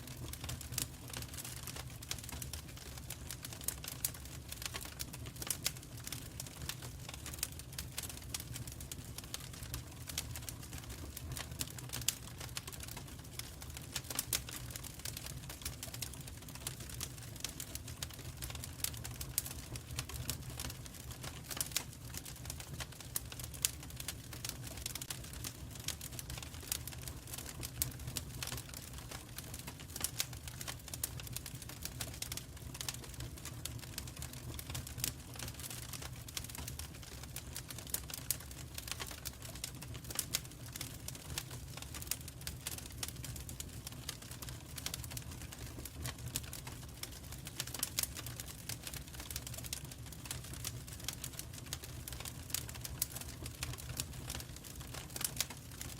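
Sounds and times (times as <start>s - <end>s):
low rumble of flames: 0.0s - 55.9s
wood fire crackling: 0.0s - 55.9s.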